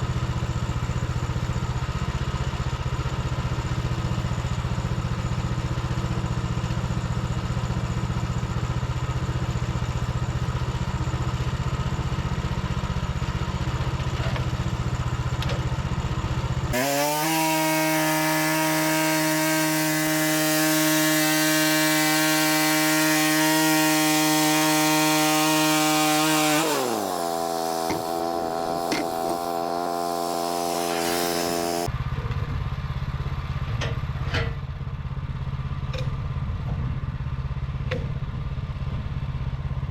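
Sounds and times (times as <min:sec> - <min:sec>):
sawmill gas engine: 0:00.0 - 0:39.9
band blade sawing wood: 0:16.7 - 0:31.9.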